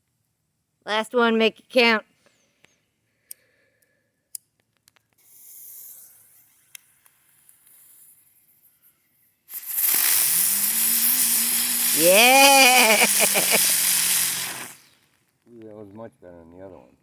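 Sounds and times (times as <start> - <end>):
fuse sputtering hiss: 5.2 - 15.2
spinning firework hissing: 5.2 - 15.2.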